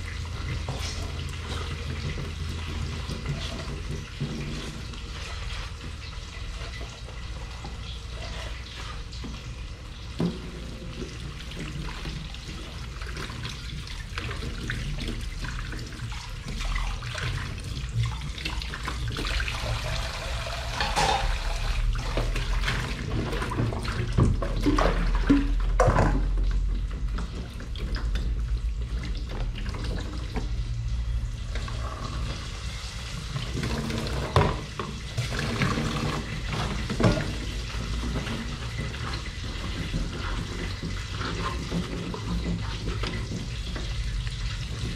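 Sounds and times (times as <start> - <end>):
water running from tap: 0.0 - 44.9
dishes and utensils clinking: 20.7 - 21.4.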